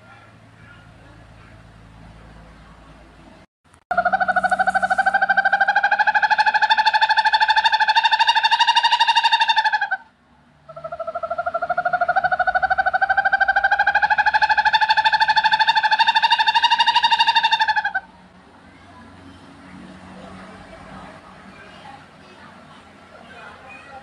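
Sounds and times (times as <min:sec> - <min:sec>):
owl trilling: 0:03.9 - 0:10.1, 0:10.7 - 0:18.1.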